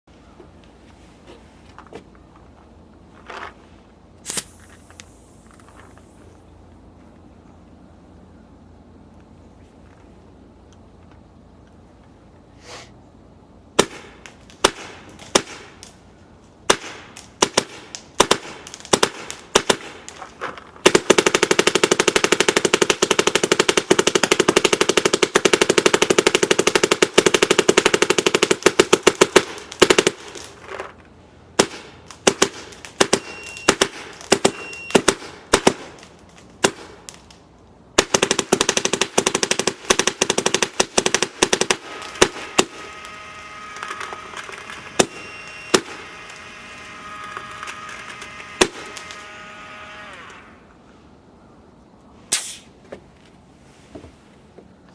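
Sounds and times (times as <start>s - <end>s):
paintball gun firing: 4.2s - 6.4s, 13.8s - 15.8s, 16.7s - 20.2s, 20.8s - 30.5s, 31.6s - 37.1s, 38.0s - 46.3s, 48.5s - 49.2s, 52.3s - 52.7s.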